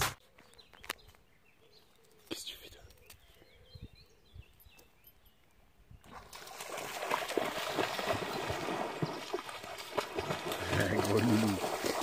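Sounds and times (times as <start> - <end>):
dog splashing through water: 6.1 - 12.0.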